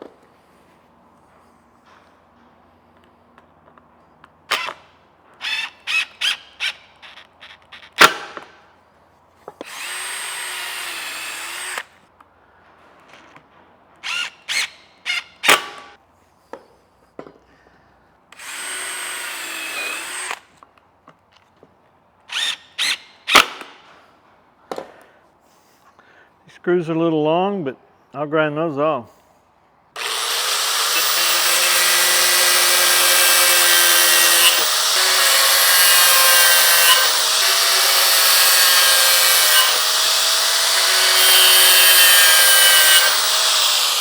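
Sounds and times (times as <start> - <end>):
cordless drill whining: 9.6 - 12.0, 18.4 - 20.5, 30.0 - 44.0
tool and wood clacking: 30.0 - 44.0.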